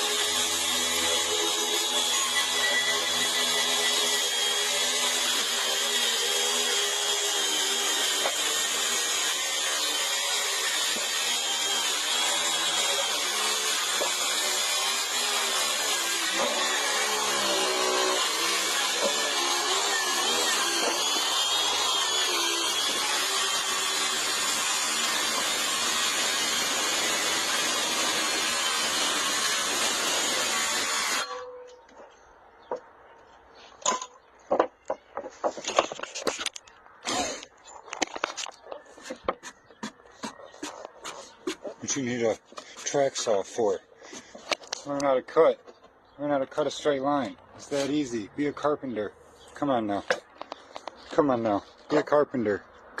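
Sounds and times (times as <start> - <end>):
circular saw cutting wood: 0.0 - 31.6.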